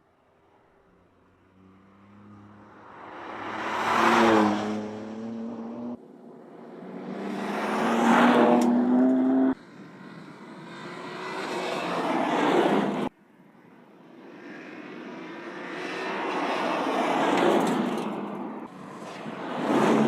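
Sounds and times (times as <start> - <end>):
car driving past at speed: 1.5 - 6.0, 6.6 - 9.6.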